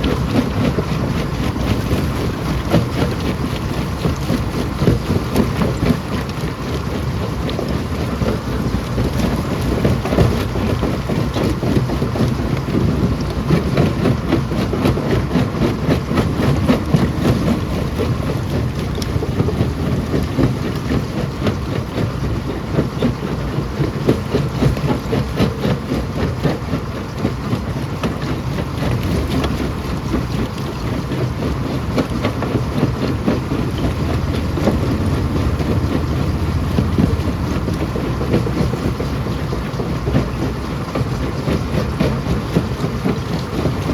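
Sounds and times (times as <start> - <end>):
stone crusher rumbling: 15.3 - 21.2, 32.9 - 39.2.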